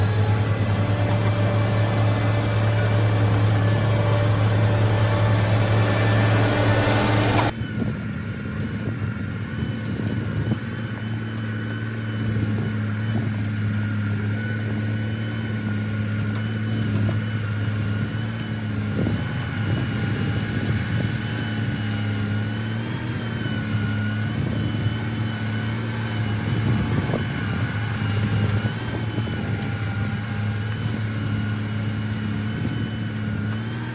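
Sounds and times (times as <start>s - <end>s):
heavy machinery diesel engine: 0.0s - 33.9s.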